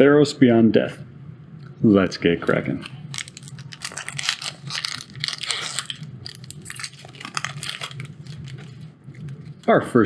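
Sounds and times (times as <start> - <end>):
foil wrapper crinkling: 2.5 - 9.7.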